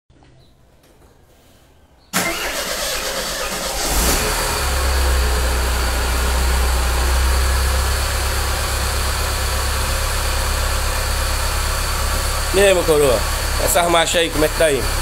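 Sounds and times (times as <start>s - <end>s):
starter motor cranking: 2.2s - 4.9s
car engine idling: 2.2s - 15.0s.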